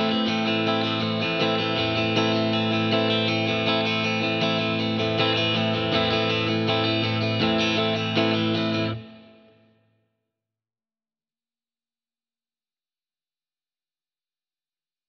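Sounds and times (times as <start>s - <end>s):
guitar strumming chords: 0.0s - 9.8s.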